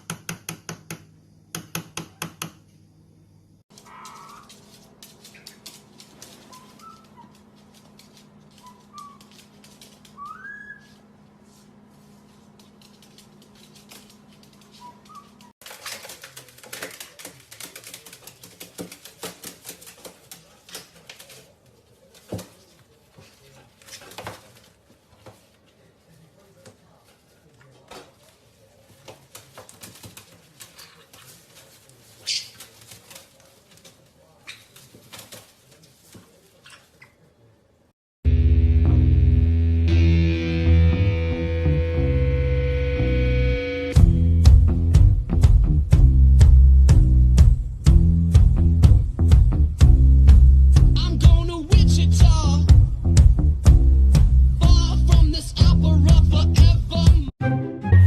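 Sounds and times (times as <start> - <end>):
parrot chirping: 6.4 - 7.4, 8.5 - 9.4, 10.1 - 11.0, 32.2 - 32.7
parrot rising whistle: 10.2 - 10.9.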